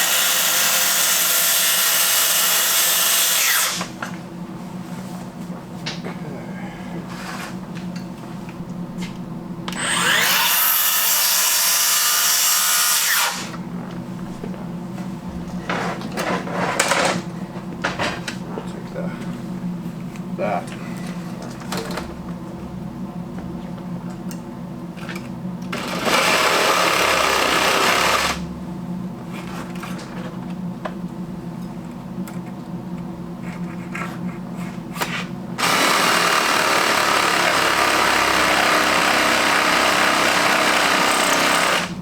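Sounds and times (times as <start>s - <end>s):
electric power saw cutting wood: 0.0s - 4.0s, 9.8s - 13.6s, 25.7s - 28.4s, 35.6s - 42.0s.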